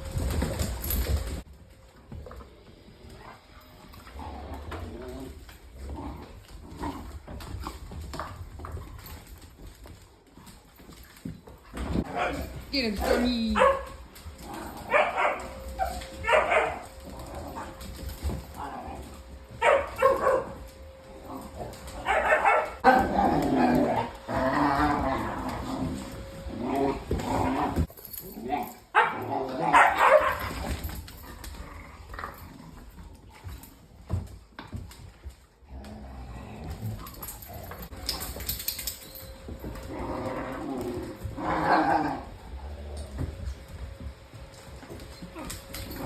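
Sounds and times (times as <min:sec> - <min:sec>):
dogs scuffling: 0:00.0 - 0:46.0
dogs growling: 0:03.1 - 0:09.3, 0:11.7 - 0:15.8, 0:16.6 - 0:19.3, 0:20.9 - 0:33.6, 0:35.6 - 0:38.6, 0:39.5 - 0:43.6
dogs barking and yipping: 0:12.0 - 0:18.4, 0:19.4 - 0:21.0, 0:21.7 - 0:25.6, 0:28.9 - 0:30.8.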